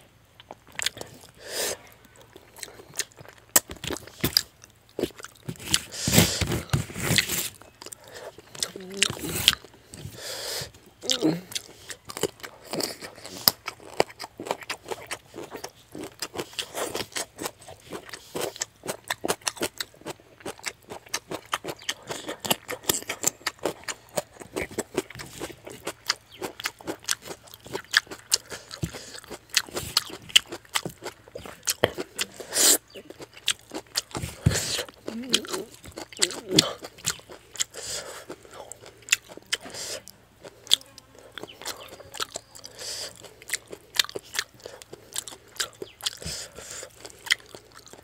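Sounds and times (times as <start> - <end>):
chewing clicks and lip smacks: 35.0 - 39.7, 40.7 - 48.0.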